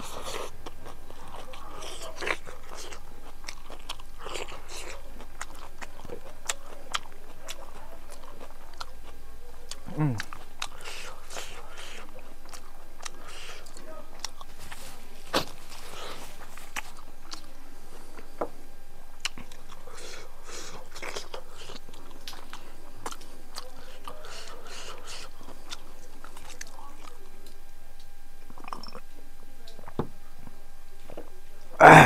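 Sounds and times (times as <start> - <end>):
person chewing: 0.0 - 30.0.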